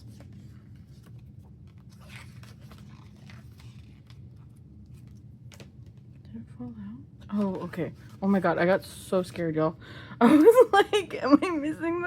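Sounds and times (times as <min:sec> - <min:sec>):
packaging crackling and rustling: 0:00.0 - 0:06.1
low steady hum: 0:00.0 - 0:12.0.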